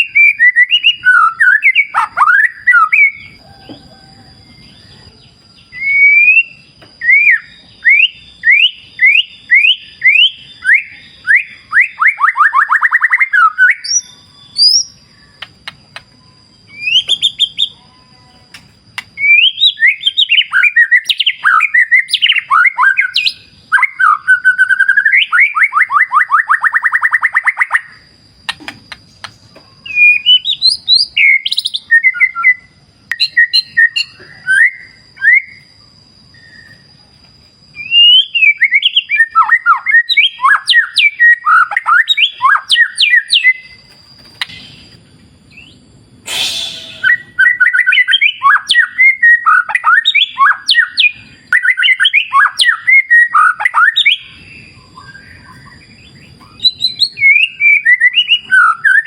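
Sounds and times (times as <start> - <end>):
bird singing whistled phrases: 0.0 - 28.1, 29.8 - 35.7, 37.8 - 43.8, 45.5 - 59.0
short burst of noise: 46.2 - 47.3.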